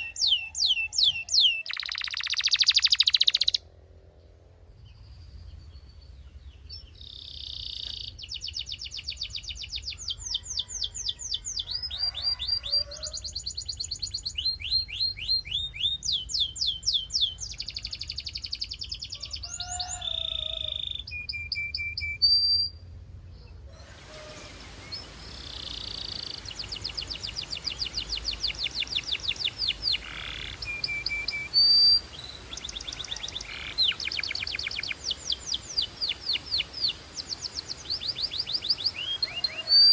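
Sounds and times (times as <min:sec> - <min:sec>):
canary singing trills: 0:00.0 - 0:03.6, 0:06.7 - 0:22.8, 0:23.8 - 0:39.9.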